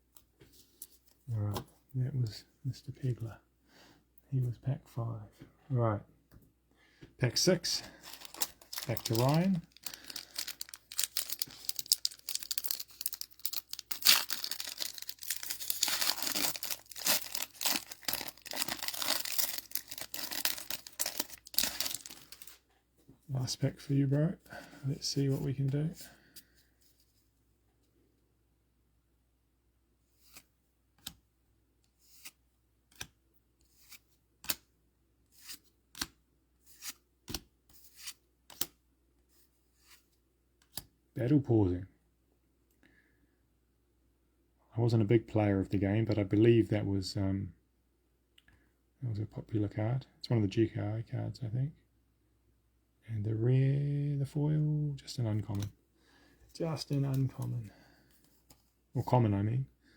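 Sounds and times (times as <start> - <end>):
plastic wrapper tearing and crinkling: 8.0 - 22.6
trading cards swishing and snapping: 35.4 - 38.8.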